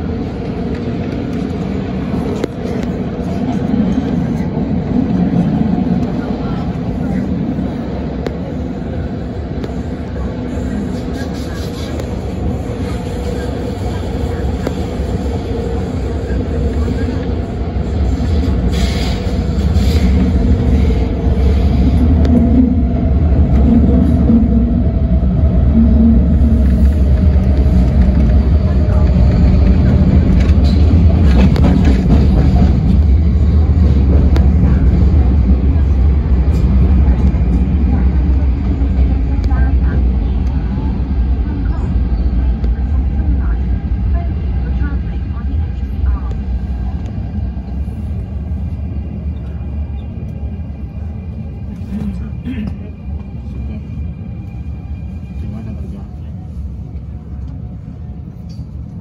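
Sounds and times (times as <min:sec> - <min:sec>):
train rumble in tunnel: 0:00.0 - 0:59.0.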